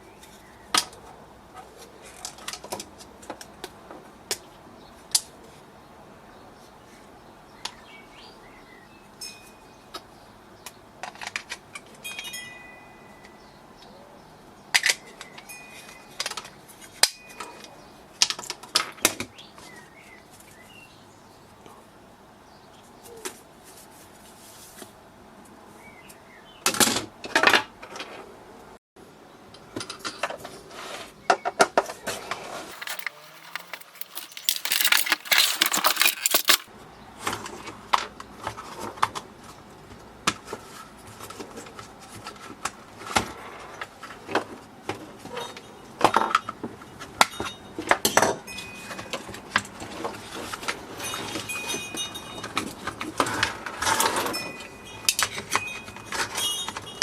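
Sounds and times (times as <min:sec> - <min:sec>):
clicks and clinks of parts: 0:32.7 - 0:36.7.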